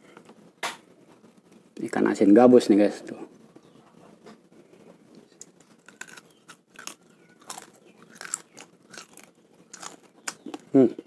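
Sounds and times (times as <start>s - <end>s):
chewing dried fish: 5.2s - 11.0s.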